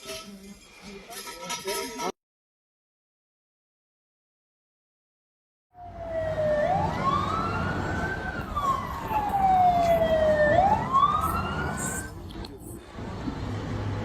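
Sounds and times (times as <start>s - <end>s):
emergency siren wailing: 5.8s - 12.2s.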